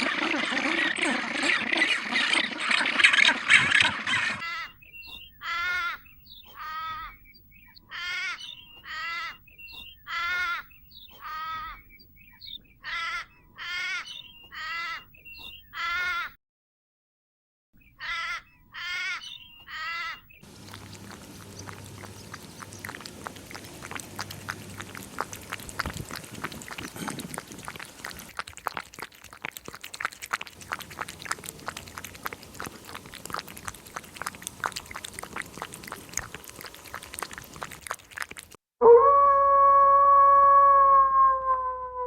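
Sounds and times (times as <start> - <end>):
harsh animal calls: 0.0 - 4.7, 18.0 - 29.8, 30.6 - 38.5.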